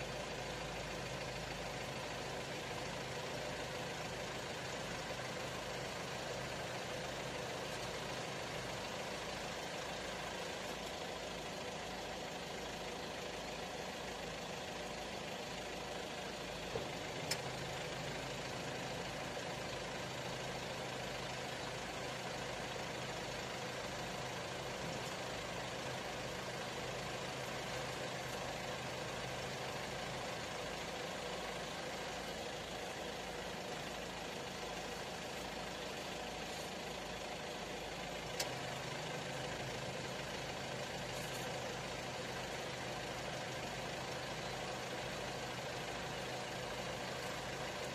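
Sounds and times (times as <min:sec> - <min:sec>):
engine idling: 0:00.0 - 0:47.9.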